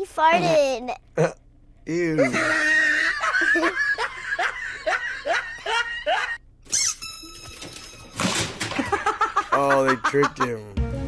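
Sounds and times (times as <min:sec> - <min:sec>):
person laughing: 0:02.1 - 0:06.4, 0:08.8 - 0:10.7.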